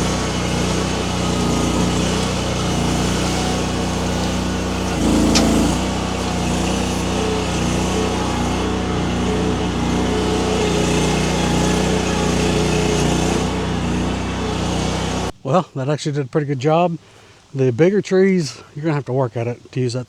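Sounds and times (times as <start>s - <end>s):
small engine running: 0.0s - 15.3s.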